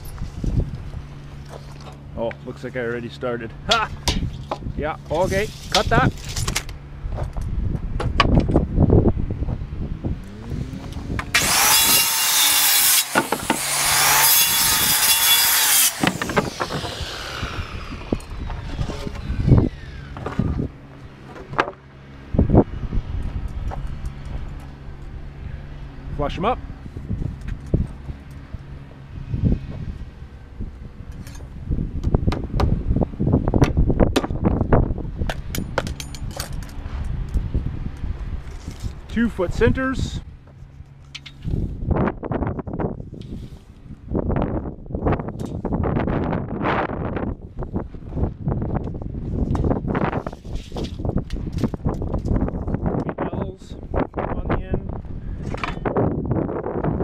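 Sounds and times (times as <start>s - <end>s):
wind rumble on microphone: 0.0s - 57.0s
saw cutting wood: 5.1s - 6.4s, 10.2s - 21.4s
circular saw whining: 10.0s - 21.4s
wooden boards knocking: 16.0s - 17.0s.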